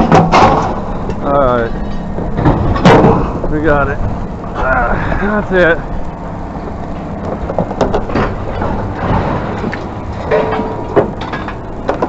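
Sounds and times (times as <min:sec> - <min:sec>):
sharp knocks and clanks: 0:00.0 - 0:03.7, 0:06.9 - 0:12.0
low engine rumble: 0:00.0 - 0:12.0.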